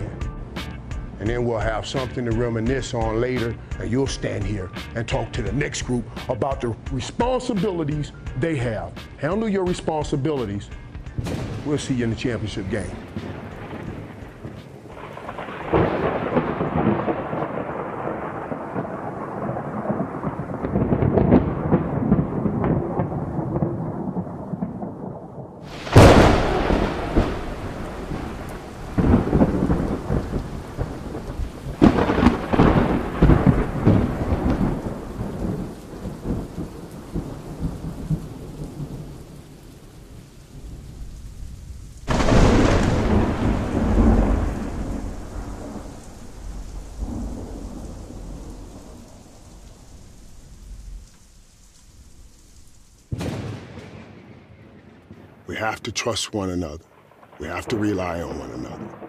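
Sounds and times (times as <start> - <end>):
steady rain: 5.4 - 59.0
loud thunderclap: 11.2 - 39.3, 40.5 - 51.1, 53.1 - 55.7, 57.0 - 59.0
rolling thunder: 11.2 - 55.6, 56.9 - 59.0.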